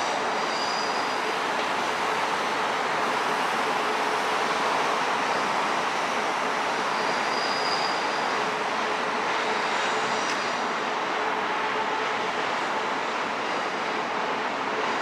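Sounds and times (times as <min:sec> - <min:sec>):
faint high wheel squeal: 0:00.0 - 0:02.2, 0:05.2 - 0:08.6
train rolling on tracks: 0:00.0 - 0:15.0.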